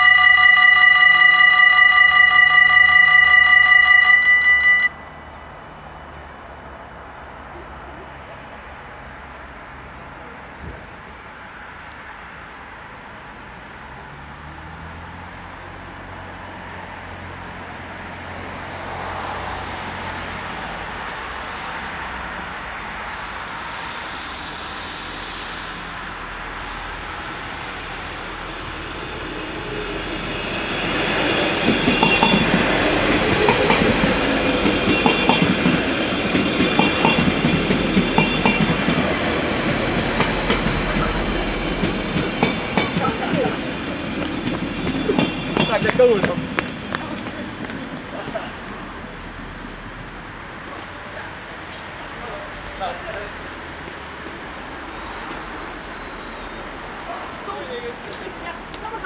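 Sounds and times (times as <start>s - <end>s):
high wheel squeal: 0.0s - 5.3s, 19.6s - 47.1s, 52.2s - 58.4s
diesel train engine passing: 0.0s - 59.0s.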